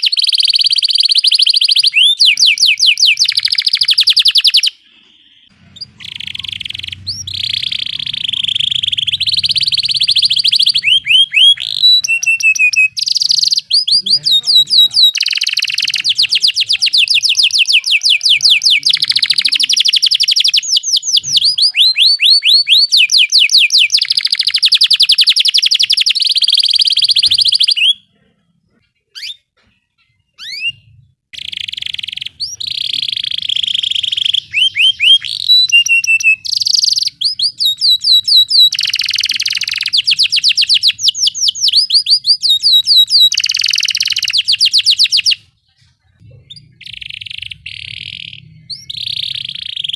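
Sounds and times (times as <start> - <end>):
canary trilling: 0.0 - 45.6, 46.3 - 49.9.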